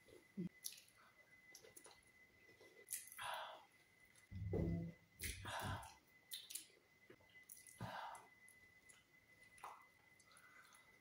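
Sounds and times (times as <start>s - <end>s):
chewing smacks and clicks: 0.6s - 0.9s, 6.3s - 6.8s.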